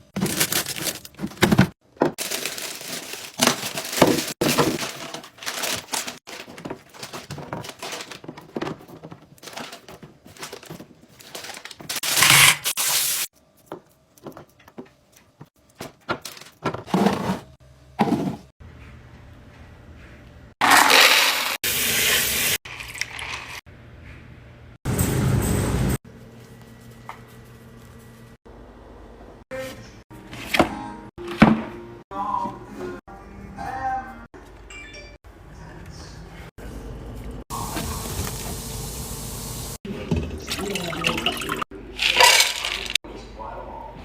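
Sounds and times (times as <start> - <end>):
containers knocking and clacking: 0.2 - 12.1.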